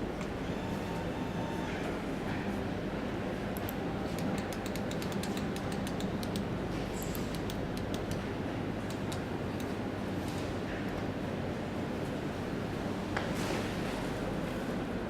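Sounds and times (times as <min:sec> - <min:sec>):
steady hum and hiss: 0:00.0 - 0:15.0
quick light clicks: 0:03.6 - 0:09.8.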